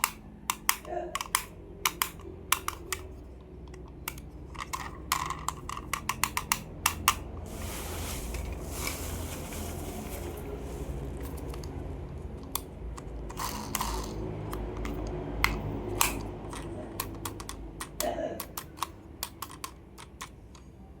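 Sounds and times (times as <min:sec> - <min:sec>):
toy cars clicking and tapping: 0:00.0 - 0:07.5, 0:11.2 - 0:20.7
plastic packaging rustle: 0:07.4 - 0:12.0.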